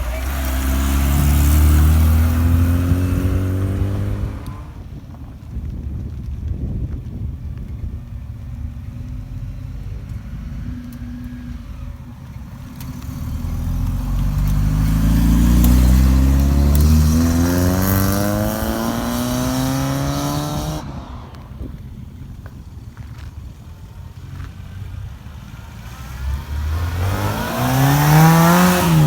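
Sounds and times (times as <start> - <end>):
car engine accelerating past: 0.0 - 4.9, 9.0 - 21.9, 24.4 - 29.0.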